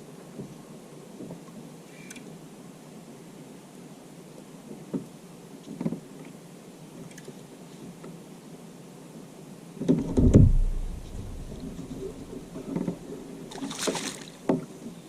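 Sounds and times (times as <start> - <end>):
knocks on plastic kayak: 9.9 - 11.7
muffled thump with deep rumble: 9.9 - 13.1.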